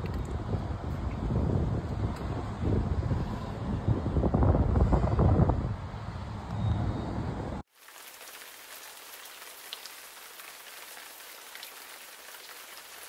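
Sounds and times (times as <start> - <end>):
rain drops ticking: 7.7 - 13.0.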